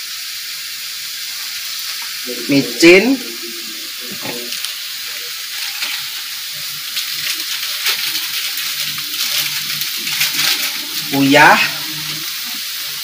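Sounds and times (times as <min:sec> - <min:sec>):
spice paste sizzling in a wok: 0:00.0 - 0:13.0.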